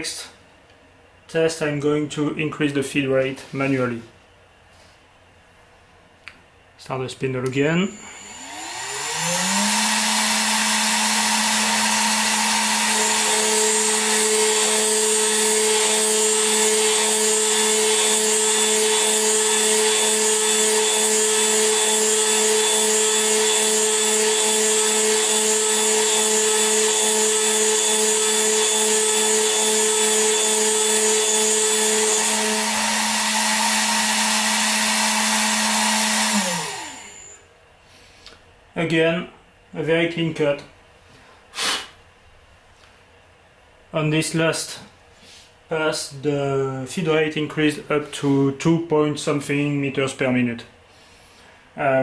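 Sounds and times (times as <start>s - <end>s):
end mill cutting whine: 7.7s - 37.4s
mill spindle whine: 7.8s - 37.4s.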